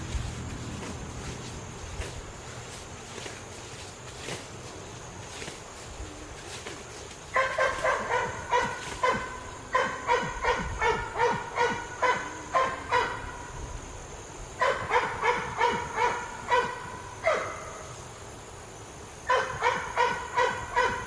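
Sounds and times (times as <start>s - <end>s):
dog barking: 7.3s - 13.4s, 14.6s - 17.8s, 19.3s - 21.0s.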